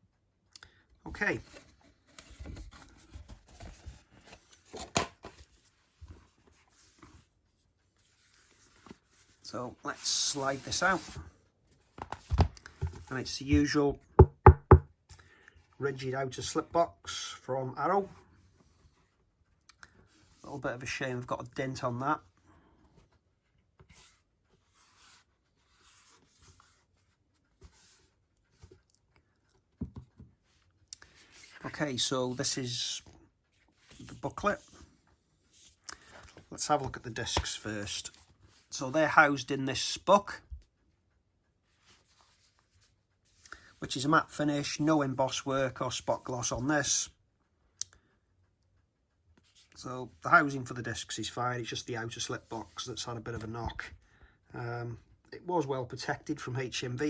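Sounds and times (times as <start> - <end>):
cardboard and paper rustling: 1.3 - 13.8
cardboard rustling and tapping: 1.4 - 6.4, 11.8 - 14.9, 29.7 - 30.5
soft knocks: 14.2 - 14.9.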